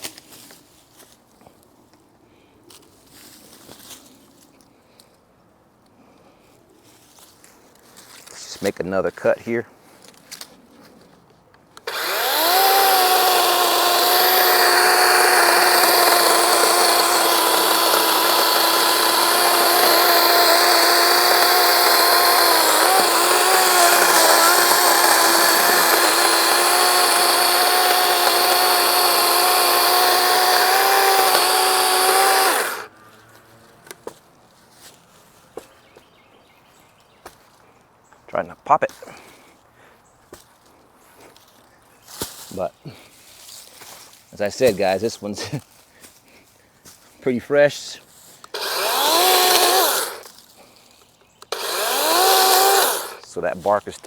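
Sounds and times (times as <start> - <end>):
chainsaw cutting log: 11.8 - 32.9, 48.5 - 50.4, 51.4 - 53.4.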